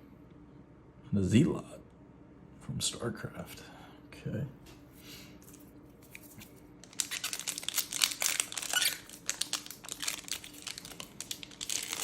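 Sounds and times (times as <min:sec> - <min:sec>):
wrapper crinkling and tearing: 0:06.1 - 0:12.0.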